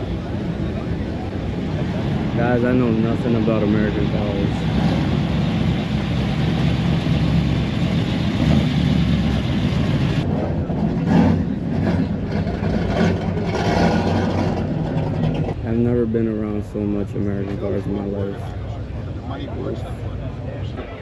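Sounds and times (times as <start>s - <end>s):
car engine running loudly: 0.0s - 19.8s.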